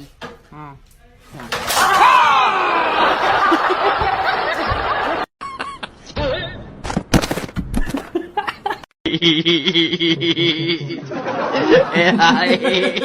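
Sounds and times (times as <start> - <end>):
people laughing loudly: 2.4 - 6.0, 8.1 - 13.0.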